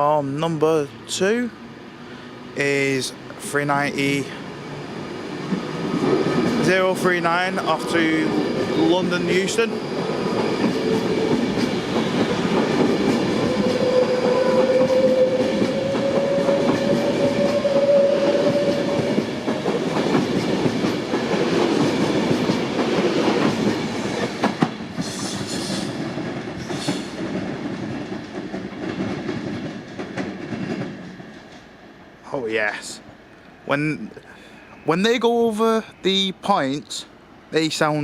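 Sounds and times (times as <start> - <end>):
electric train motors whining: 4.4 - 25.8
train wheels clattering: 5.3 - 31.8.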